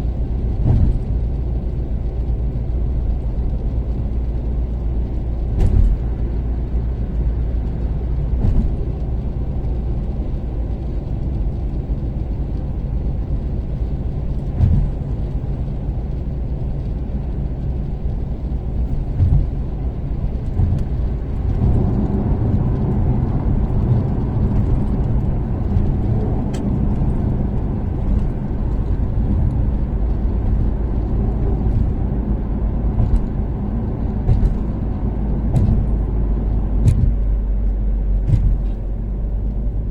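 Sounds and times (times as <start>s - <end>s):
car engine running: 0.0s - 39.9s
tyre and road rumble: 0.0s - 39.9s
short thumps: 5.5s - 6.2s, 8.4s - 9.0s, 14.5s - 15.3s, 18.9s - 22.0s, 32.8s - 39.0s.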